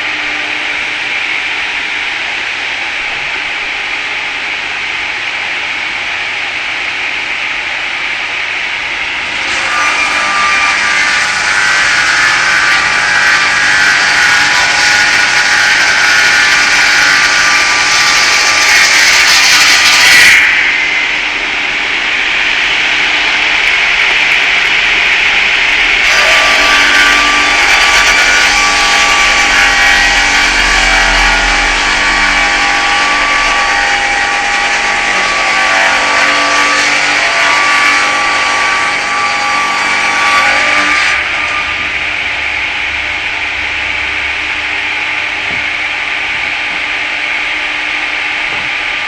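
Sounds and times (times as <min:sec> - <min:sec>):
circular saw blade cutting log: 0:09.2 - 0:43.6.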